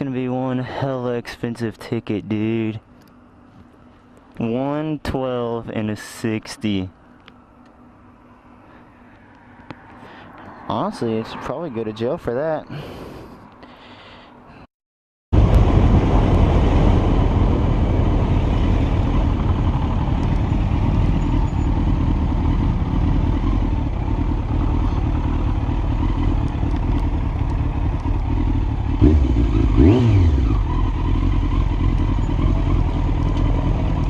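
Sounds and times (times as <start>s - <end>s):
motorcycle engine at speed: 15.4s - 34.0s.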